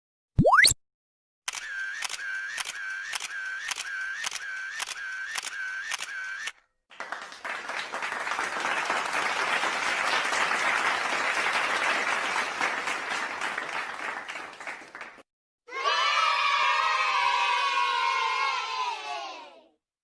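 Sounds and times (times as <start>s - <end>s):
repeating clicking effect: 0.4s - 0.8s, 1.5s - 6.5s
crowd applause: 6.9s - 15.2s.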